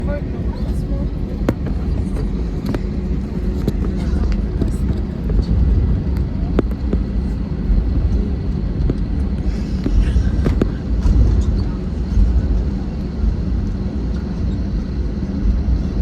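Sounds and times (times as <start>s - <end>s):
jet airliner cabin rumble: 0.0s - 16.0s.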